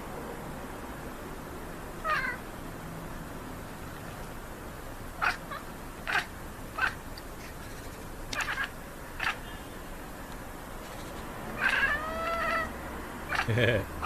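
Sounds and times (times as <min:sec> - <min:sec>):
cat chirping: 0:02.0 - 0:02.4, 0:05.2 - 0:09.5, 0:10.8 - 0:14.0.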